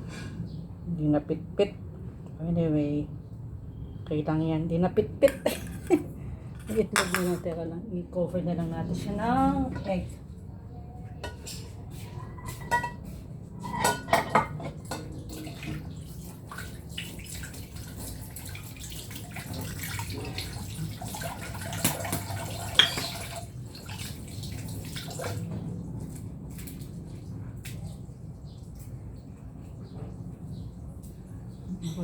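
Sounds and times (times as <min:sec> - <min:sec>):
utensils and dishes clinking: 0:06.6 - 0:07.5, 0:11.2 - 0:15.8, 0:21.8 - 0:23.5.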